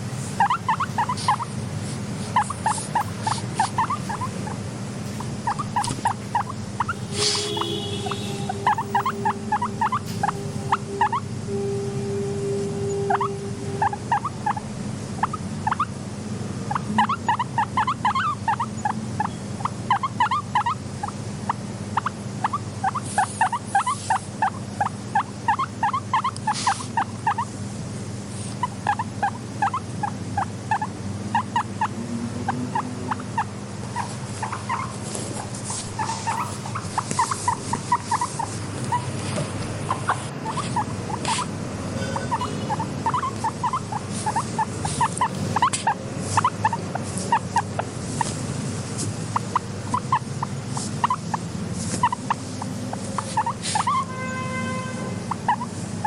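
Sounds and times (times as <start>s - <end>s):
guinea pigs squeaking: 0.0s - 11.3s, 12.9s - 16.0s, 16.6s - 56.0s
scratchy rustling: 33.9s - 41.5s, 42.3s - 49.6s, 50.7s - 53.9s.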